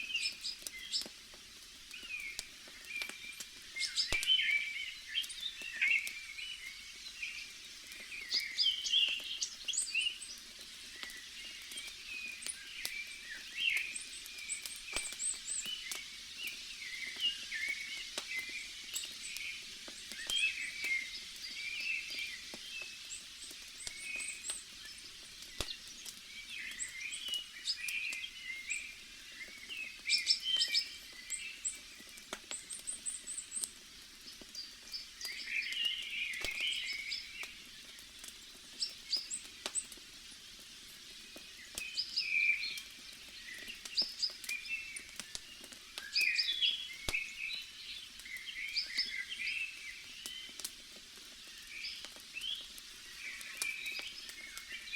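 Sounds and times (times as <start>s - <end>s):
small birds chirping: 0.0s - 54.9s
bonfire pops: 0.2s - 4.5s, 9.1s - 28.2s, 29.6s - 42.0s, 42.7s - 46.1s.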